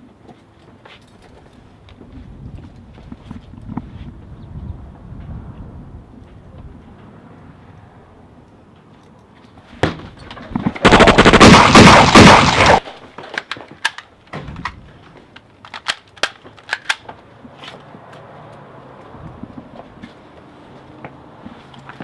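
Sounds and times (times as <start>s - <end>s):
rapid automatic gunfire: 10.8s - 12.8s.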